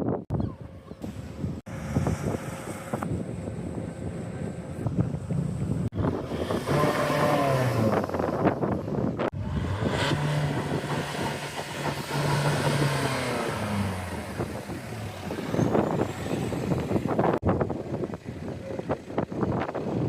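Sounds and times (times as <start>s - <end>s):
car engines revving: 1.0s - 17.4s.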